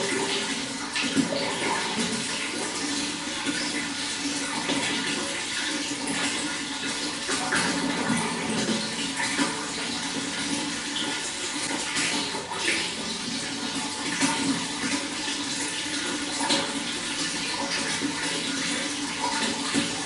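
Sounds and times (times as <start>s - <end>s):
running water flowing: 0.0s - 20.0s
small water splashes: 0.0s - 20.0s.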